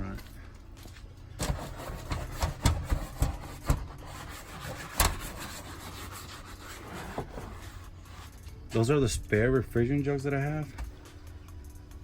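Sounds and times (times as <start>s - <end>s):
items knocking and thumping: 1.4s - 4.0s
rubbing and scraping: 1.4s - 8.6s.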